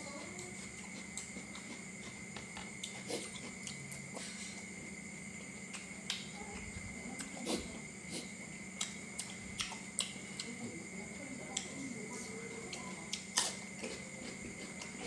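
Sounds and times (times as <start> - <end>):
chewing crispy food: 0.0 - 10.7, 11.5 - 15.0
steady background hum: 0.0 - 15.0.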